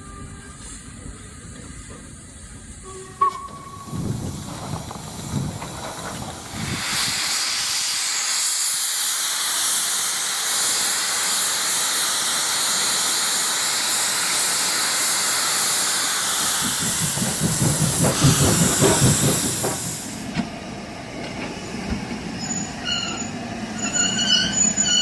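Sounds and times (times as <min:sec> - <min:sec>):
steam locomotive chuffs: 0:00.0 - 0:25.0
hiss of escaping steam: 0:03.8 - 0:25.0.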